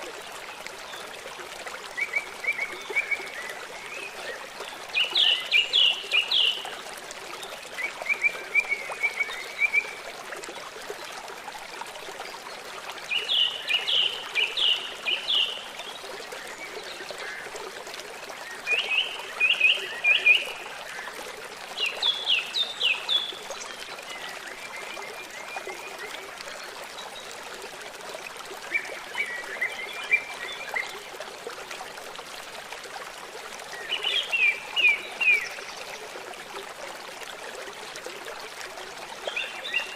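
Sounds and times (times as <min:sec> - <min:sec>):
stream trickling: 0:00.0 - 0:39.9
songbird singing: 0:02.0 - 0:06.8.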